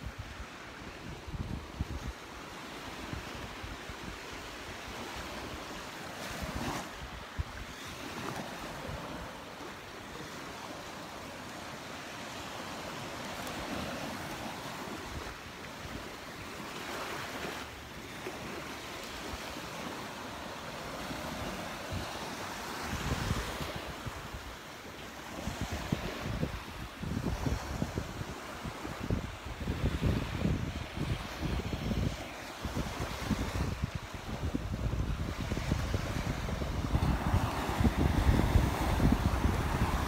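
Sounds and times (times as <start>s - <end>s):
wind buffeting microphone: 0.0s - 2.2s, 20.8s - 24.5s, 25.3s - 40.0s
surf washing onto beach: 0.0s - 40.0s.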